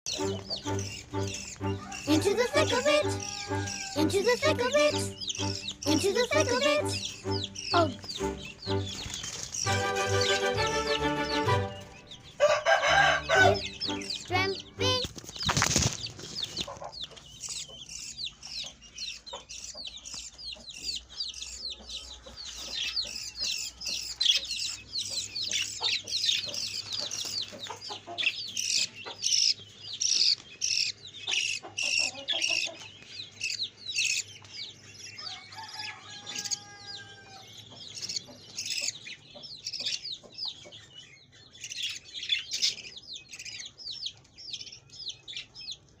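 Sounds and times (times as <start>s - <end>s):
chicks cheeping: 0.0s - 46.0s
song: 0.1s - 12.4s, 13.0s - 15.1s
wing-flapping: 14.9s - 16.7s.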